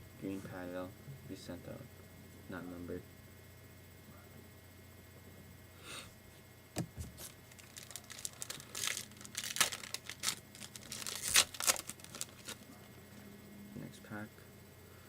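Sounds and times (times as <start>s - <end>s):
wrapper crinkling and tearing: 7.2s - 12.6s.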